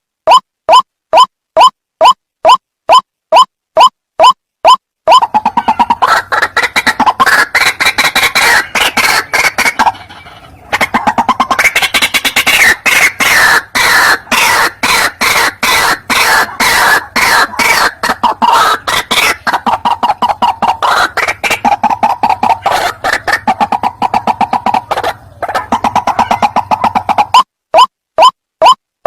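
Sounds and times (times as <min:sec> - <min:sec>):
bird calling repeated short notes: 0:00.2 - 0:09.8, 0:25.9 - 0:28.8.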